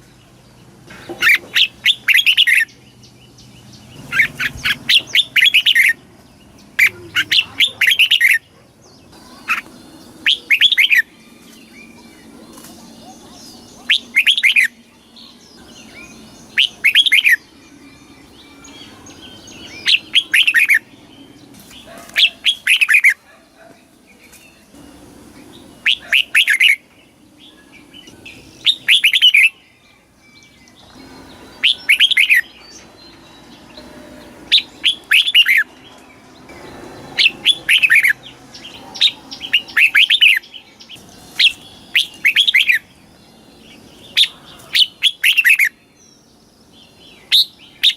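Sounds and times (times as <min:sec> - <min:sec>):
bulbul singing whistled notes: 0:09.2 - 0:21.5, 0:25.4 - 0:35.8, 0:36.4 - 0:47.9.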